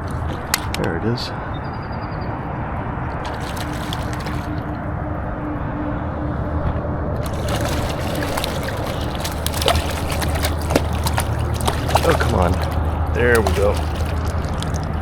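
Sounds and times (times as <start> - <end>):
fish splashing in water: 0.0 - 0.8, 3.1 - 4.8, 7.2 - 15.0.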